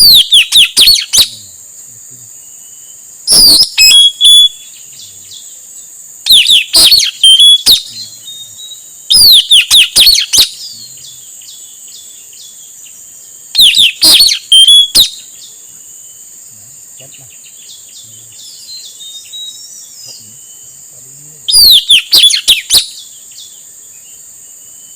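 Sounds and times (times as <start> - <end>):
bird calling shrill notes: 0.0 - 1.4, 2.6 - 5.5, 6.2 - 12.6, 13.5 - 15.5, 17.4 - 20.8, 21.5 - 23.5.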